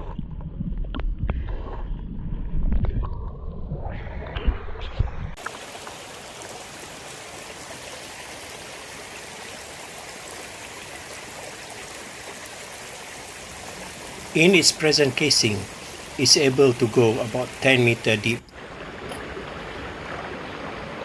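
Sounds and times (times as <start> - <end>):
stream flowing: 5.4 - 21.0.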